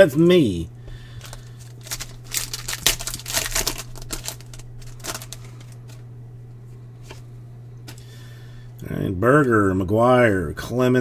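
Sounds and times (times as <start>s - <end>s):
trading cards flicking and rustling: 1.0s - 6.1s.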